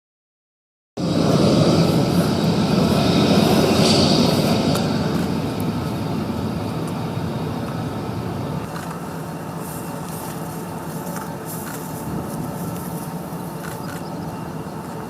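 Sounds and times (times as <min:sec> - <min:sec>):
high jet whine: 0:01.0 - 0:15.0
jet engine rumble: 0:01.0 - 0:15.0.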